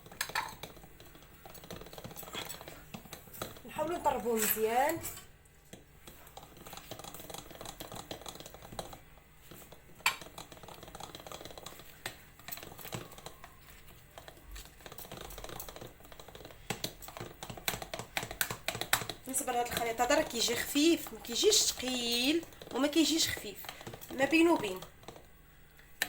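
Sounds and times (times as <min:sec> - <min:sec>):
utensil clicking against bowl: 0:14.2 - 0:26.0.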